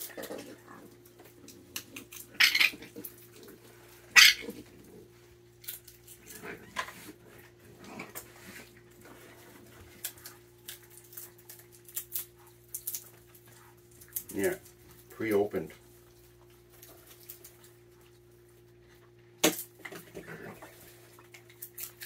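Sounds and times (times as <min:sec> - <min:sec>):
peanut shells cracking: 0:00.0 - 0:03.6, 0:05.6 - 0:06.5, 0:09.9 - 0:15.1, 0:21.4 - 0:22.0.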